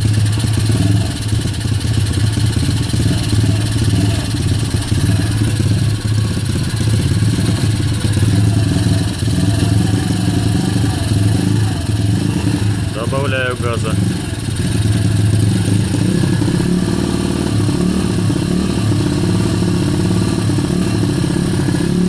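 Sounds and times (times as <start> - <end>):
engine revs hunting up and down: 2.3 - 22.0.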